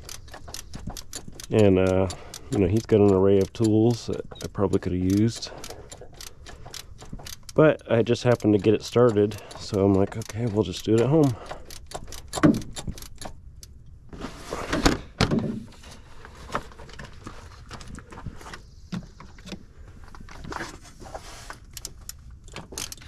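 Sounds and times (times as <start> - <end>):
rustling handling noise: 14.0 - 23.0.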